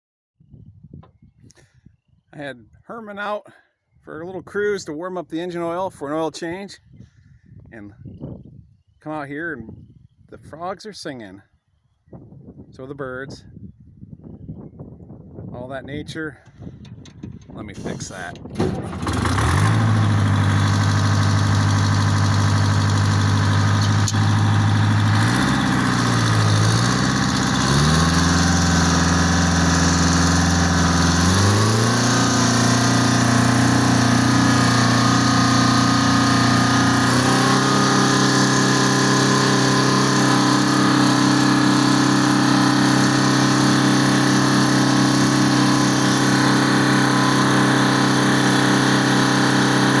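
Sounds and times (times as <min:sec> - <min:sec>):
tractor diesel engine running: 0:16.5 - 0:50.0.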